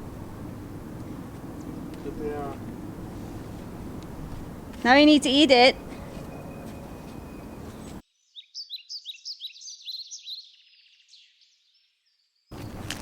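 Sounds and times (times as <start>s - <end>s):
outdoor background noise: 0.0s - 10.3s, 12.5s - 13.0s
small bird chirping: 5.8s - 12.5s.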